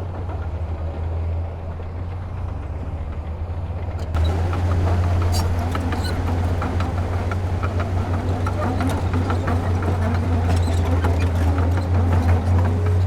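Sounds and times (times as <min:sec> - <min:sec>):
light clanks and rattles: 0:04.0 - 0:13.0
diesel engine humming: 0:04.1 - 0:13.0.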